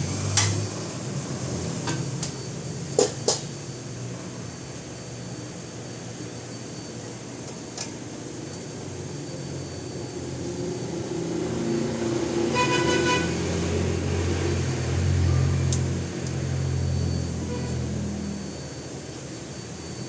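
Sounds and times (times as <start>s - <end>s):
vehicle engine passing: 0.0s - 2.2s, 10.6s - 18.8s
short horn toot: 12.5s - 13.4s.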